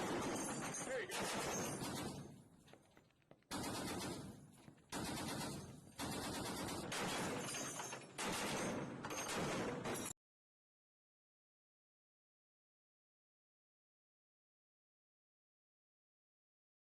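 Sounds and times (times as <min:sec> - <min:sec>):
gunfire bursts with echo: 0:00.0 - 0:02.4, 0:03.5 - 0:07.5, 0:08.2 - 0:10.0.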